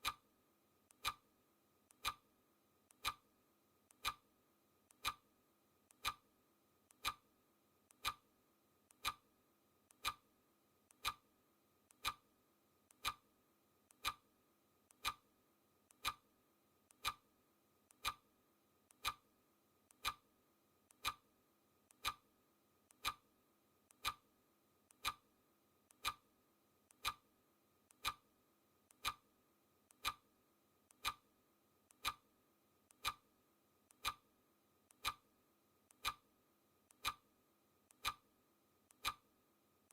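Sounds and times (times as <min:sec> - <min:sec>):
clock ticking: 0:00.0 - 0:00.2, 0:00.9 - 0:01.3, 0:01.9 - 0:02.3, 0:02.9 - 0:03.3, 0:03.9 - 0:04.3, 0:04.9 - 0:05.3, 0:05.9 - 0:06.3, 0:06.9 - 0:07.3, 0:07.9 - 0:08.3, 0:08.9 - 0:09.3, 0:09.9 - 0:10.3, 0:10.9 - 0:11.3, 0:11.9 - 0:12.3, 0:12.9 - 0:13.3, 0:13.9 - 0:14.3, 0:14.9 - 0:15.3, 0:15.9 - 0:16.3, 0:16.9 - 0:17.3, 0:17.9 - 0:18.3, 0:18.9 - 0:19.3, 0:19.9 - 0:20.3, 0:20.9 - 0:21.3, 0:21.9 - 0:22.3, 0:22.9 - 0:23.3, 0:23.9 - 0:24.3, 0:24.9 - 0:25.3, 0:25.9 - 0:26.3, 0:26.9 - 0:27.3, 0:27.9 - 0:28.3, 0:28.9 - 0:29.3, 0:29.9 - 0:30.3, 0:30.9 - 0:31.3, 0:31.9 - 0:32.3, 0:32.9 - 0:33.3, 0:33.9 - 0:34.3, 0:34.9 - 0:35.3, 0:35.9 - 0:36.3, 0:36.9 - 0:37.3, 0:37.9 - 0:38.3, 0:38.9 - 0:39.3.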